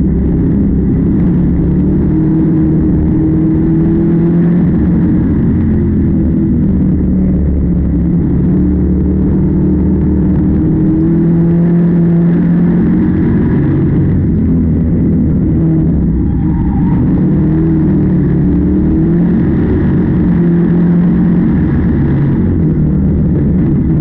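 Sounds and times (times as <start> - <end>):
farm machinery engine running: 0.0 - 24.0.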